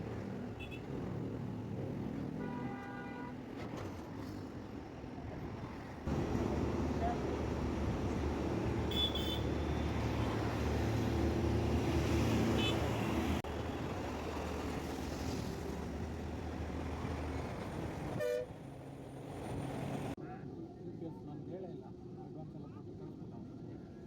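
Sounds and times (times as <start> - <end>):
road traffic rumble: 0.0 - 20.2
vehicle horn toots: 8.9 - 9.8, 12.5 - 13.3, 18.2 - 18.5.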